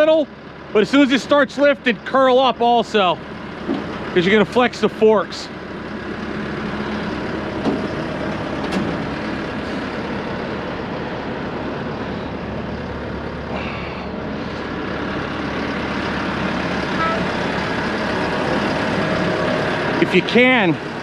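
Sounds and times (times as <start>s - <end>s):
forklift engine running: 0.0s - 21.0s
high-pitched squeal: 11.9s - 21.0s.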